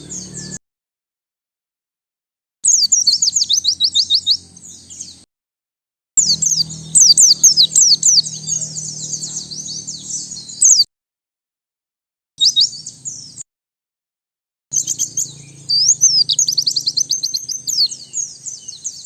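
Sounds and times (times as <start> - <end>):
bird high falling chirps: 2.6 - 5.2, 6.2 - 10.9, 12.4 - 13.4, 14.7 - 19.0.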